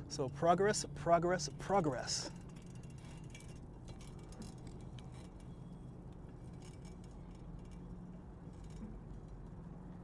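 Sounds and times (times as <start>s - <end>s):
steady low hum: 0.0s - 10.0s
clinking and ticking rattles: 1.8s - 9.6s.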